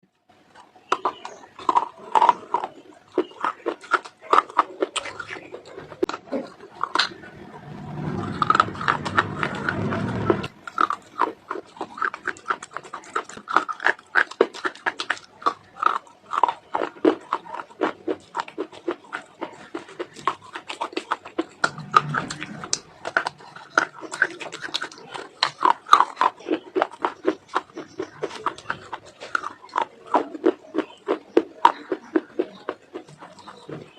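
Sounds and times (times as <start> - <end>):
chewing crunchy clay: 0.5 - 33.9
low steady noise: 4.0 - 12.5, 19.5 - 25.3.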